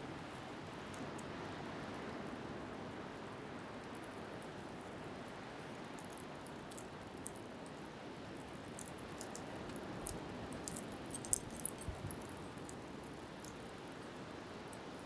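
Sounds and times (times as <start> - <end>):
wind: 0.0 - 15.0
wood fire crackling: 6.0 - 13.7.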